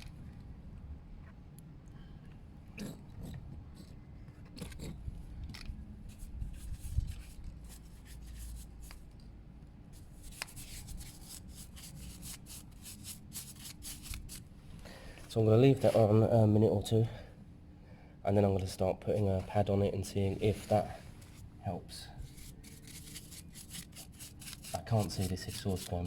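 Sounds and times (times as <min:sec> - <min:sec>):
brush scraping on metal: 0:22.3 - 0:26.0.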